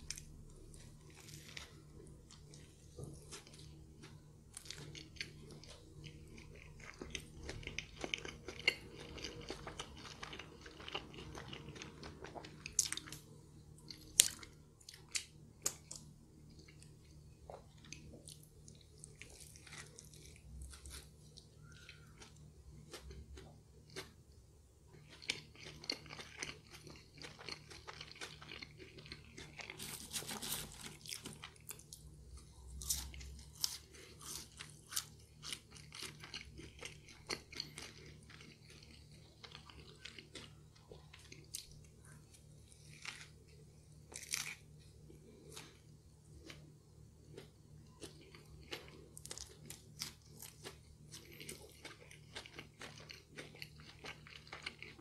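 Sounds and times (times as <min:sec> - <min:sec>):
crackles and clicks of food: 0:00.0 - 0:55.0
close-up chewing and biting: 0:25.0 - 0:31.9, 0:32.6 - 0:46.7, 0:47.3 - 0:55.0.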